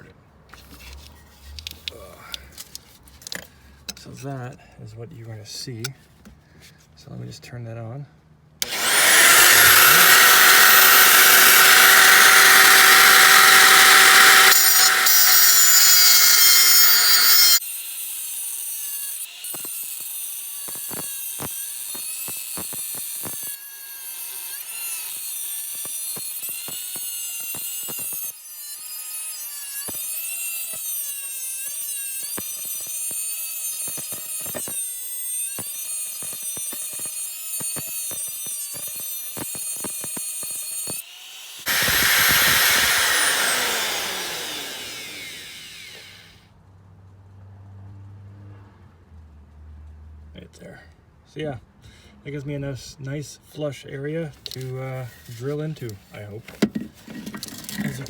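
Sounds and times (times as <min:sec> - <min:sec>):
power grinder grinding steel: 0:08.6 - 0:46.4.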